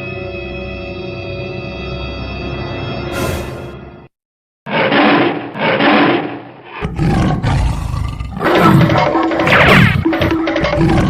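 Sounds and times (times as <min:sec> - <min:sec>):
tiger roars: 0:04.7 - 0:11.0.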